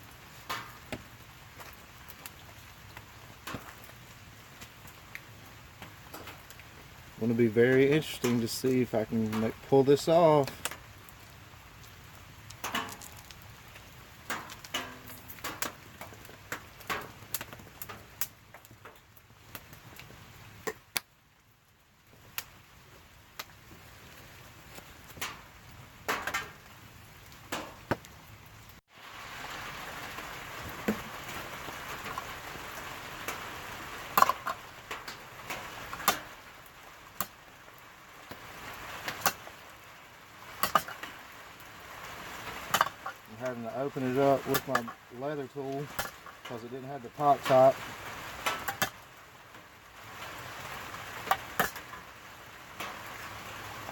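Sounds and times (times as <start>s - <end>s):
steady hiss: 0.0s - 19.0s, 28.9s - 53.9s
rain pattering: 0.0s - 53.9s.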